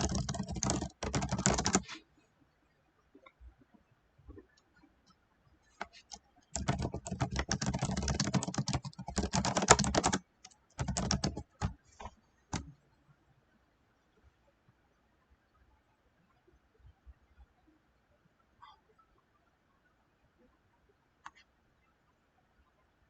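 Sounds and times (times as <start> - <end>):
typing on computer keyboard: 0.0 - 2.0, 5.8 - 12.7.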